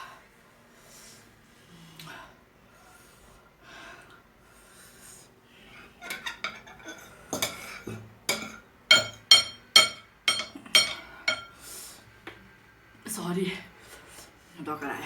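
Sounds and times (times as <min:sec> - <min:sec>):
utensils clinking against a bowl: 0:06.0 - 0:11.6.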